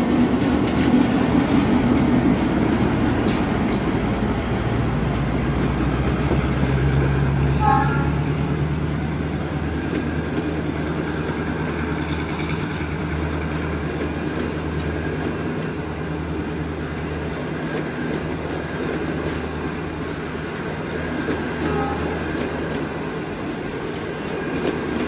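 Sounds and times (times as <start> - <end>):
train rumble and hum: 0.0 - 25.0
wheels clicking over rail joints: 8.4 - 23.0.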